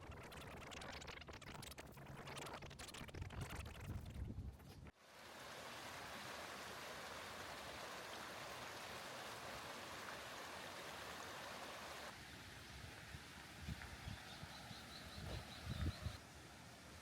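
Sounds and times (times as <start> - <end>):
stream water rushing: 5.0 - 12.2.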